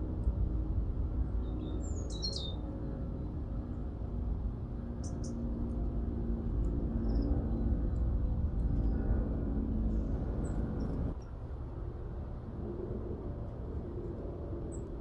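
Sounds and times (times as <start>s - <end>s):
low background rumble: 0.0s - 15.0s
small birds chirping: 1.4s - 2.6s, 5.0s - 5.4s, 7.0s - 9.0s, 9.9s - 11.2s.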